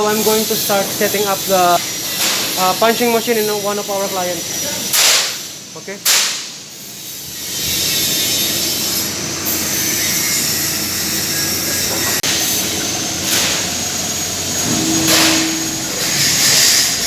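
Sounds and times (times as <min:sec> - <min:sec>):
workshop machinery roar: 0:06.5 - 0:17.0
faint steady tones: 0:14.3 - 0:17.0.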